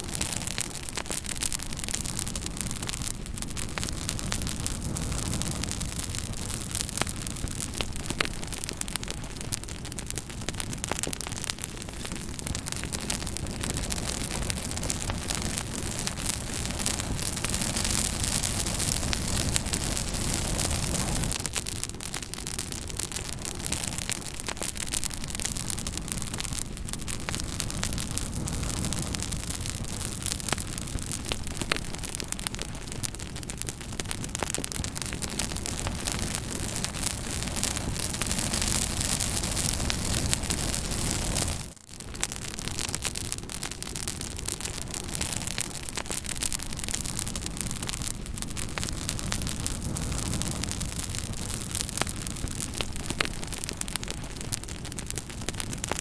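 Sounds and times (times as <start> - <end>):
fire crackling and popping: 0.0 - 56.0.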